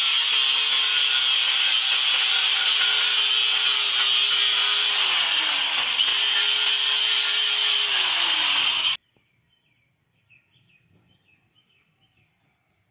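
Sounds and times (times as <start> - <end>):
electric grinder grinding steel: 0.0 - 9.0.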